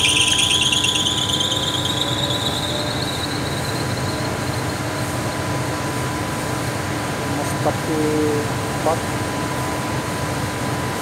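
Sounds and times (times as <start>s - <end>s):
air conditioner squeal rising in pitch: 0.0s - 6.6s.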